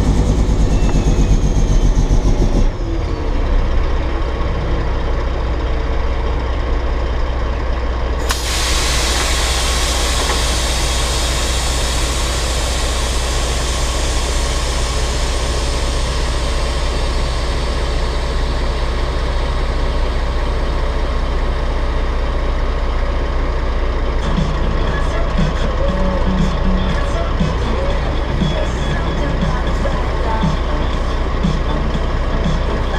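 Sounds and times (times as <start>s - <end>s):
diesel engine idling: 0.0s - 32.9s
air release hiss: 8.2s - 18.7s.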